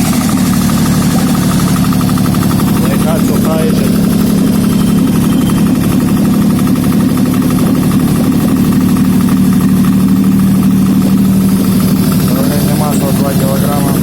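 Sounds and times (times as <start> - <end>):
petrol engine running: 0.0 - 14.0.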